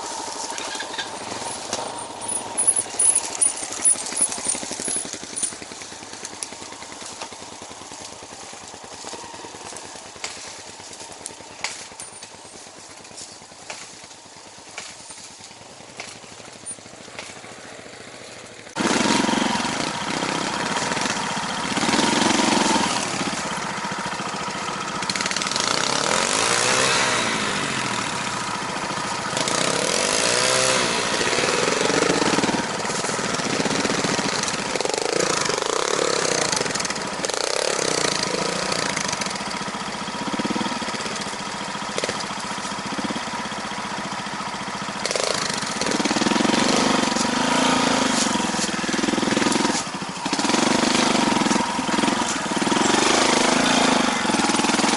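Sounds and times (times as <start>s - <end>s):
vehicle engine revving: 18.7s - 43.8s, 44.8s - 54.9s.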